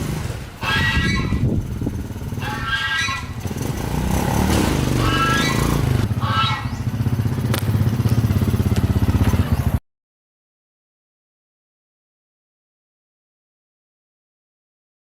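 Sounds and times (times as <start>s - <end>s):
motorcycle engine idling: 1.3s - 9.8s.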